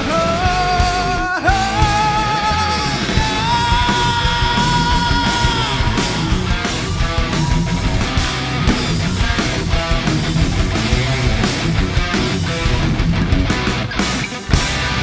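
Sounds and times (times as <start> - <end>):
rock band playing heavy metal: 0.0 - 15.0
long wavering high notes: 3.3 - 11.4.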